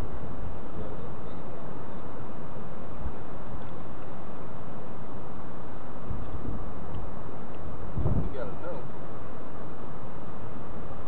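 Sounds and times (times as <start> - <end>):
wind buffeting microphone: 6.0 - 8.8.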